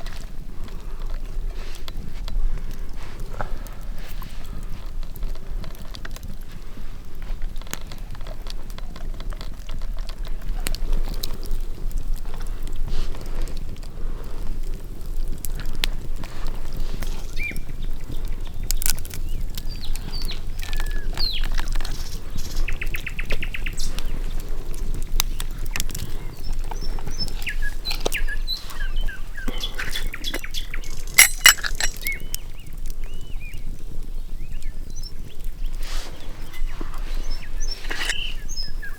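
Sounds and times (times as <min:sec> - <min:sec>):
birds chirping: 0:17.3 - 0:38.9.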